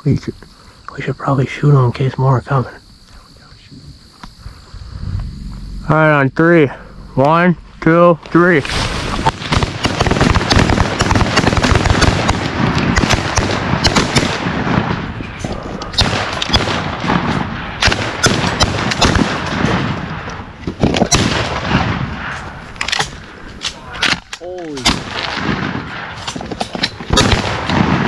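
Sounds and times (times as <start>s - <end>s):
steady noisy din: 4.4s - 18.8s
shotgun fire: 8.6s - 15.1s, 15.9s - 19.9s, 21.0s - 22.3s, 27.1s - 28.0s.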